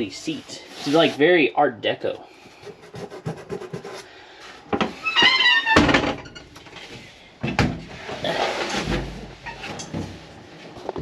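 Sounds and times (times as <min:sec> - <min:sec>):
creaking squeak: 0:05.0 - 0:06.7.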